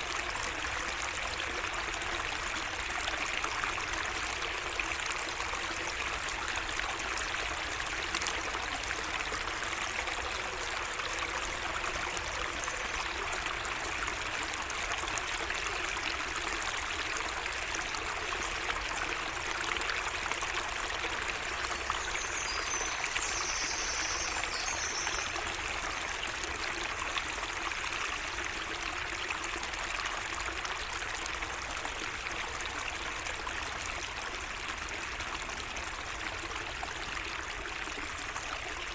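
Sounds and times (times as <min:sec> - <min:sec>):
stream trickling: 0:00.0 - 0:38.9
bird calling: 0:21.9 - 0:25.5.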